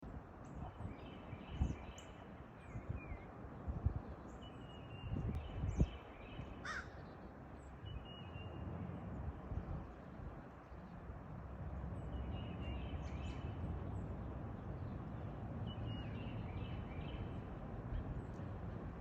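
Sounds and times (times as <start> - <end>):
crow cawing: 6.6 - 7.0.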